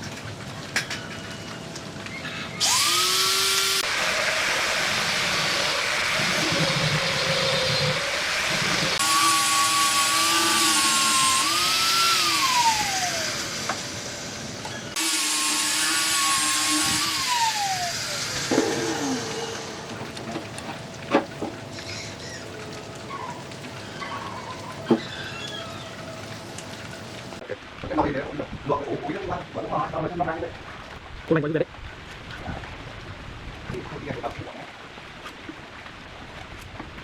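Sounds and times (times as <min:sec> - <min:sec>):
power tool motor whine: 0:02.6 - 0:20.0
wood cutting noise: 0:02.6 - 0:22.2.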